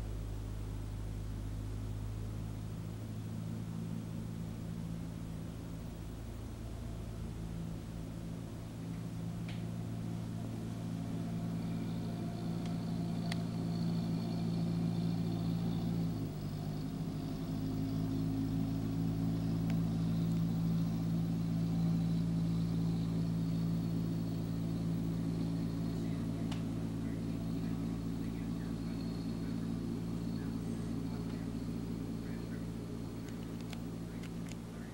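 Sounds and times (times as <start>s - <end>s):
motor droning hum: 0.0s - 34.9s
faint clicks: 12.6s - 13.6s, 26.5s - 26.7s, 33.2s - 34.6s.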